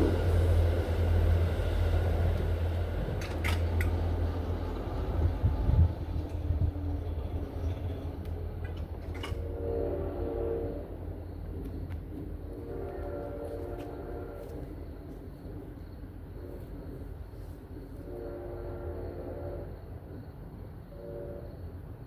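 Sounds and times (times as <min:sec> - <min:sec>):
distant train horn blasts: 0:00.0 - 0:11.3, 0:12.4 - 0:15.0, 0:17.9 - 0:20.1, 0:20.8 - 0:21.9
train rumble: 0:00.0 - 0:22.0.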